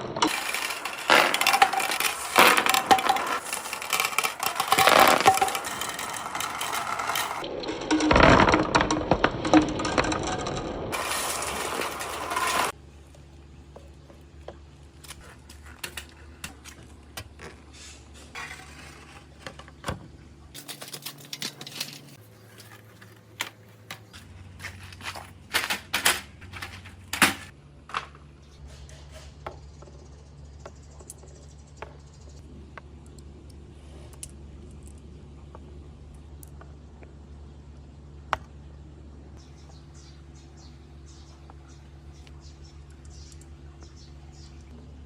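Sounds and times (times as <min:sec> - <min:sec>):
marbles rolling and clicking on wood: 0:00.0 - 0:12.8.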